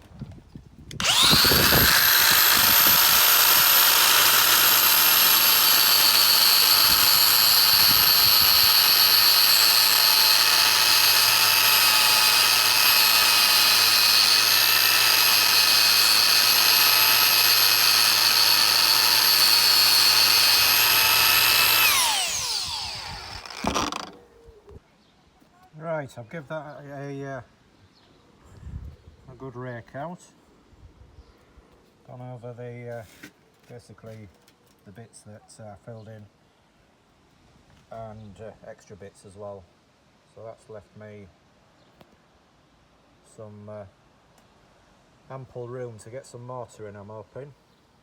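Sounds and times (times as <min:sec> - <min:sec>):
angle grinder whining: 0:01.0 - 0:24.2
grinder spinning down: 0:01.0 - 0:24.2.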